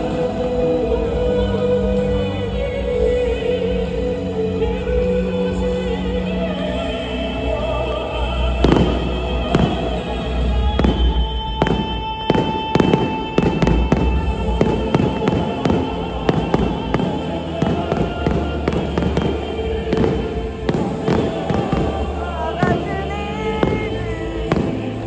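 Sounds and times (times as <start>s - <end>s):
music playing: 0.0s - 25.0s
fireworks bangs and crackles: 8.6s - 25.0s.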